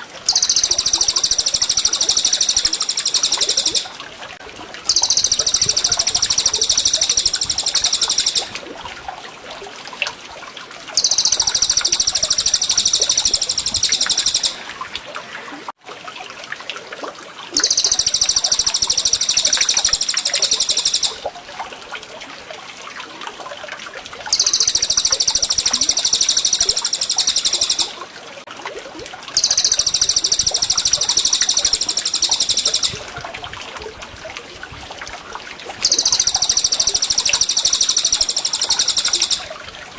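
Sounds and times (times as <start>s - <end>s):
trickle of running water: 0.0s - 39.9s
songbird rapid song phrases: 0.3s - 3.9s, 4.9s - 8.5s.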